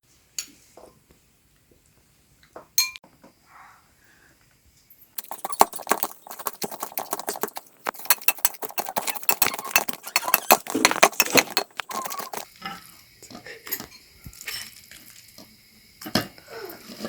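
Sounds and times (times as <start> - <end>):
utensils striking dishes and pots: 2.8 - 3.0, 5.2 - 12.5.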